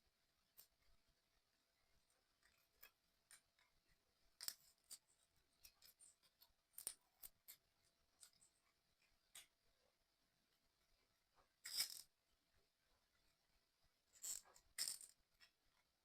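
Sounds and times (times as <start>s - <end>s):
clicks and taps of small parts: 4.4s - 9.6s.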